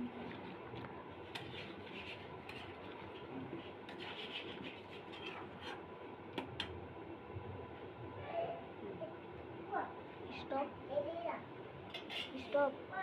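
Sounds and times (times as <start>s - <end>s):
food preparation scraping: 0.0s - 5.9s, 11.9s - 12.6s.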